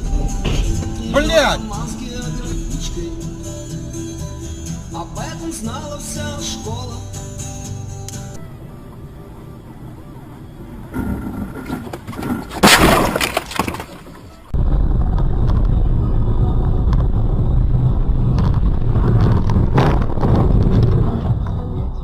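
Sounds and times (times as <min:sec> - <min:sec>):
car crash impact: 0:00.0 - 0:06.5, 0:12.5 - 0:16.1
car engine and road rumble: 0:00.0 - 0:22.0.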